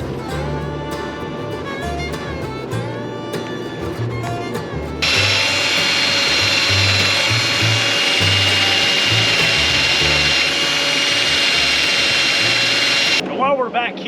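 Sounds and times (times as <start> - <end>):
power tool whining: 5.0 - 13.2.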